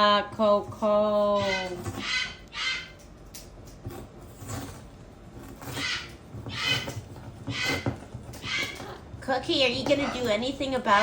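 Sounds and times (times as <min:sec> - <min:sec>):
parrot squawking: 0:01.4 - 0:03.0, 0:05.6 - 0:09.0.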